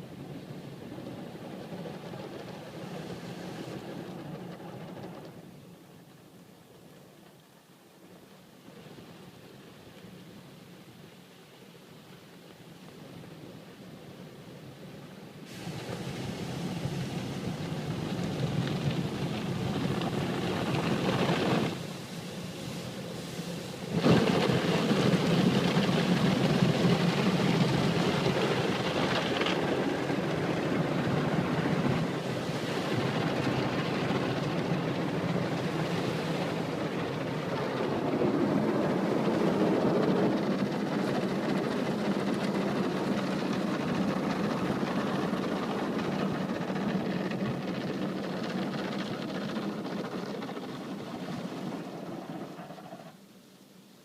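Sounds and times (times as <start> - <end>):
car wash machine rushing: 0.0 - 5.5, 15.5 - 53.1.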